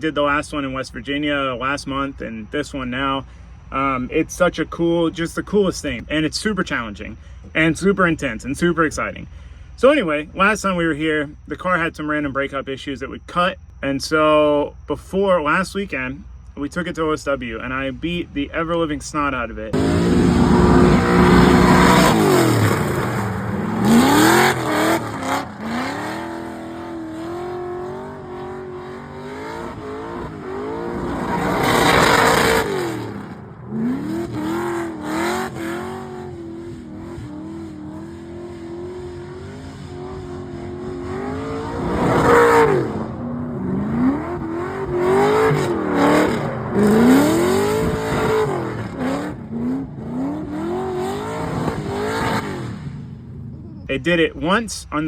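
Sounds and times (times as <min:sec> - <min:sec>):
car engine revving hard: 0:19.7 - 0:53.2.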